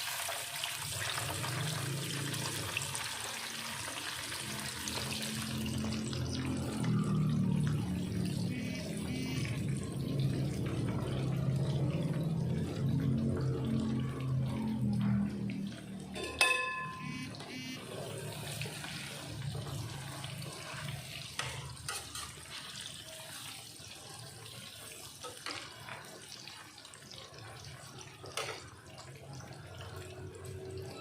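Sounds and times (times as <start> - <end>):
food sizzling in hot oil: 0.0 - 8.9, 17.4 - 29.9
oil popping and crackling: 9.5 - 16.4.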